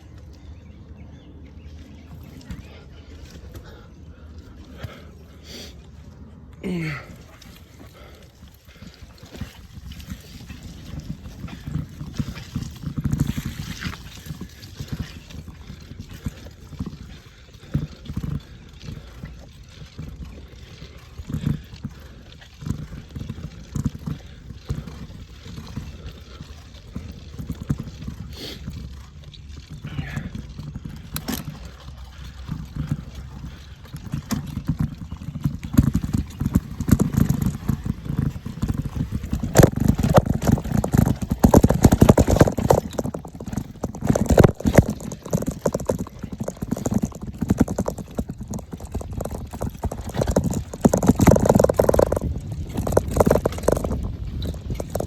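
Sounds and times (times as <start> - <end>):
mountain bike rattling on dirt trail: 0.0 - 55.0
wind rumble on microphone: 7.3 - 55.0.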